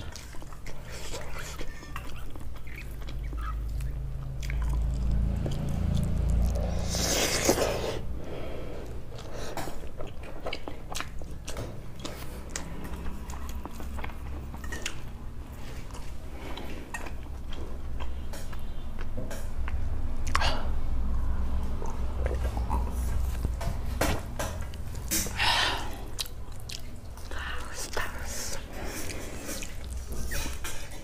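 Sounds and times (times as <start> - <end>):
close chewing with mouth clicks: 0.0 - 8.1, 8.7 - 31.0.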